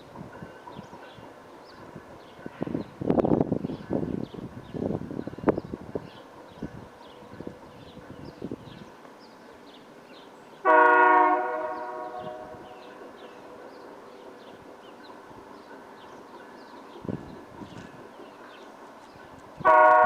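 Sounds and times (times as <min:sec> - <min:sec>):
small birds chirping: 0:00.4 - 0:10.6, 0:11.8 - 0:19.6
locomotive chime horn blast: 0:10.6 - 0:12.8, 0:19.6 - 0:20.0.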